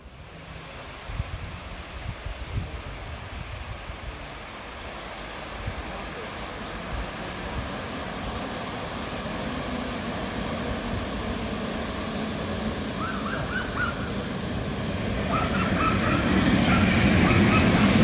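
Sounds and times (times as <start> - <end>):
train passing: 4.7 - 18.0.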